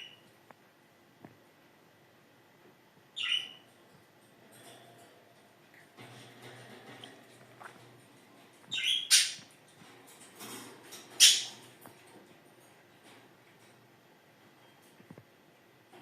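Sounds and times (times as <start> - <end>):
parrots squawking: 3.2 - 3.7, 8.7 - 9.5, 11.2 - 11.6.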